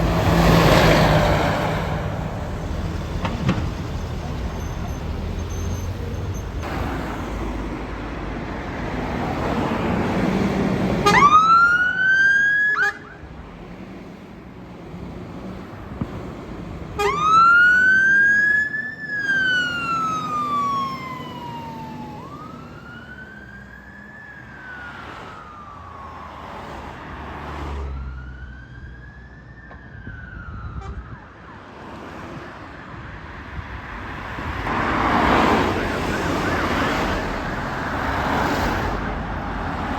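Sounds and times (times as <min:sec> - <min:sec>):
truck engine: 0:00.0 - 0:12.2, 0:12.8 - 0:29.2, 0:33.8 - 0:39.9
road noise: 0:00.0 - 0:39.9
fire engine wail siren: 0:09.4 - 0:13.3, 0:17.0 - 0:33.2, 0:34.7 - 0:39.9.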